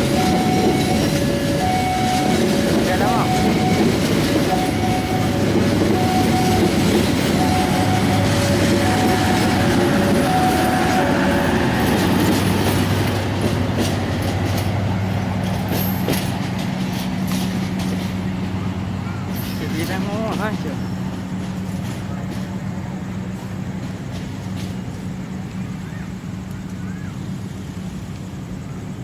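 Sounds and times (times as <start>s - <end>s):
two-tone crossing signal: 0.0s - 13.2s
train wheels clacking: 0.0s - 26.8s
train passing with low hum: 0.0s - 29.0s.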